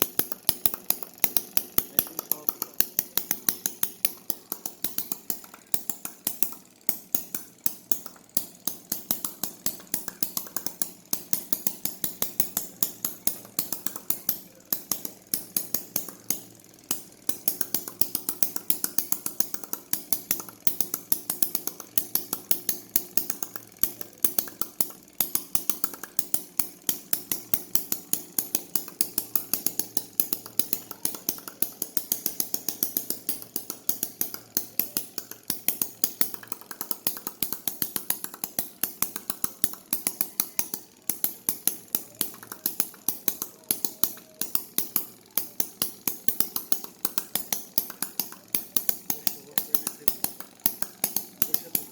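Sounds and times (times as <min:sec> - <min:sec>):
model engine clicking: 0:00.0 - 0:51.9.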